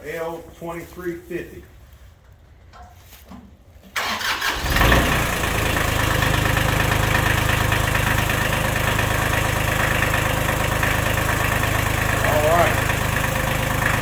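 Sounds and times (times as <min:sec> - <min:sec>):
tractor engine starting and idling: 0:03.8 - 0:14.0.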